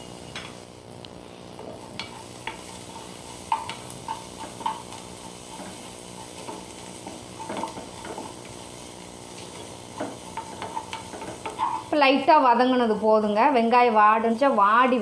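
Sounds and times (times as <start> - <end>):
vegetables sizzling in hot oil: 0.0 - 15.0
utensil scraping a pan: 1.6 - 12.0.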